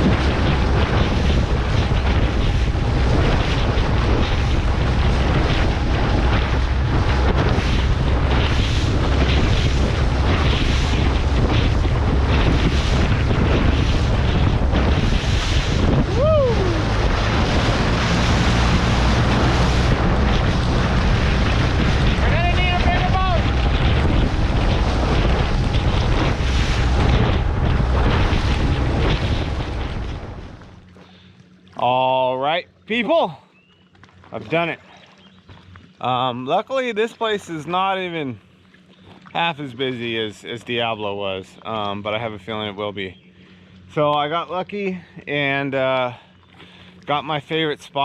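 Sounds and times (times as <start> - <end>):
wind buffeting microphone: 0.0 - 30.9
hull slapping through waves: 0.0 - 48.0
motorboat engine drone: 0.0 - 48.0.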